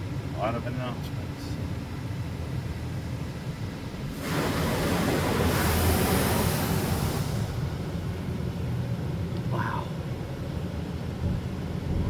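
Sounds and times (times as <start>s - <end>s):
water spray hitting car: 4.1s - 8.1s.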